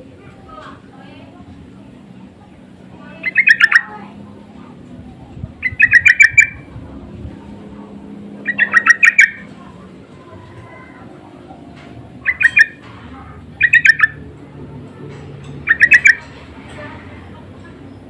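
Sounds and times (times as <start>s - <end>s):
bulbul chattering call: 3.1s - 4.1s, 5.6s - 6.7s, 8.4s - 9.6s, 12.2s - 12.9s, 13.5s - 14.3s, 15.6s - 16.4s.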